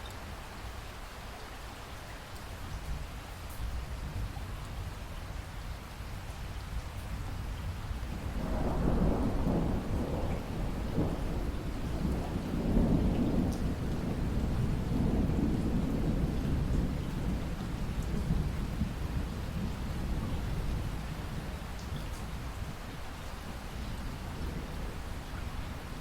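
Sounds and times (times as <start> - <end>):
steady rain: 0.0 - 26.0
distant thunder rolling: 8.1 - 22.8.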